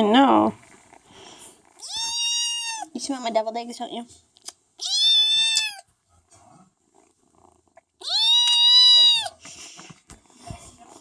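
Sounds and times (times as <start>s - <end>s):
kitten meowing: 1.8s - 2.9s, 4.8s - 5.9s, 8.0s - 9.4s.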